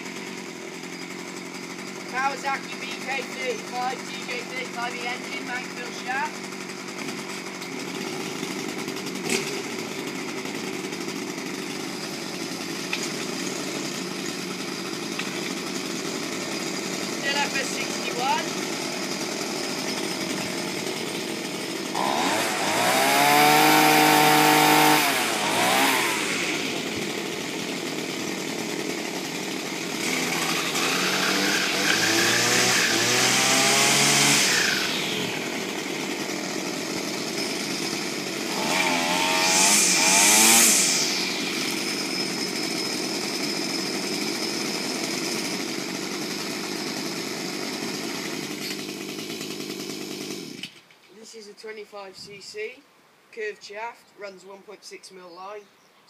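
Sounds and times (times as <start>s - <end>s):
string trimmer engine revving: 0.0s - 50.8s.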